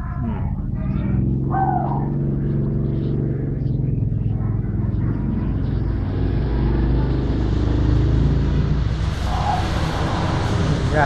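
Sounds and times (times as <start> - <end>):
vehicle engine rumbling: 0.0 - 11.0
hiss: 8.8 - 11.0.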